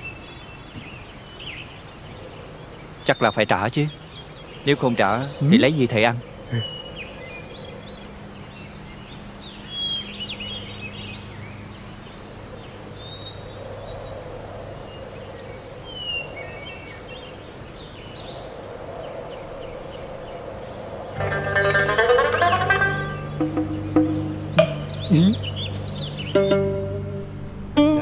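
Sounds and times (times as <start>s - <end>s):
small birds chirping: 0.0s - 26.8s
low outdoor hum: 0.0s - 28.0s
music: 21.2s - 28.0s.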